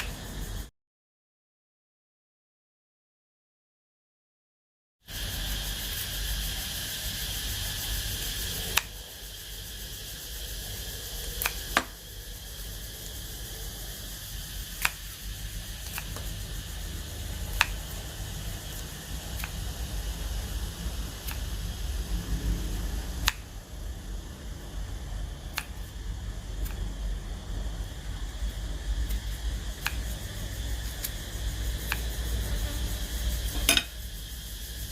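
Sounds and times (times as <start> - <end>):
high-pitched hum: 5.1 - 34.9
low hum and hiss: 5.1 - 34.9
sharp clicks: 8.7 - 9.0, 14.8 - 15.1, 23.2 - 23.5.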